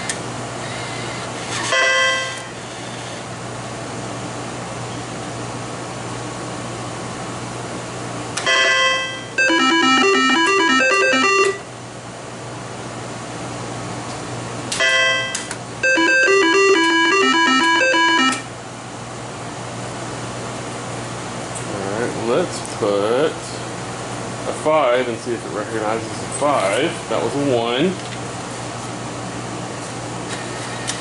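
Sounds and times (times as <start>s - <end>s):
slot machine chime: 8.5s - 11.7s, 14.8s - 18.5s.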